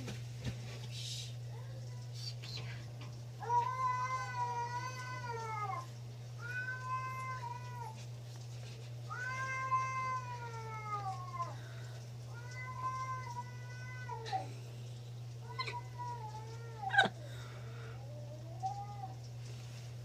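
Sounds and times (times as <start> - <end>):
cat meowing: 3.4 - 8.0, 9.1 - 11.6, 12.3 - 14.5, 15.4 - 17.2.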